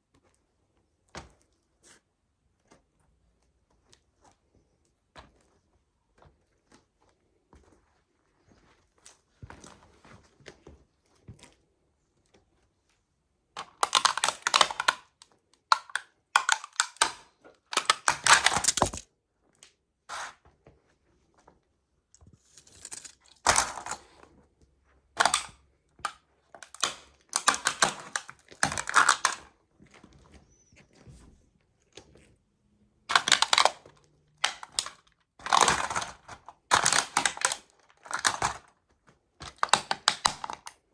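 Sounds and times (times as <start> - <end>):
toy truck crunching underfoot: 17.8 - 19.1, 22.4 - 24.2, 26.6 - 29.5.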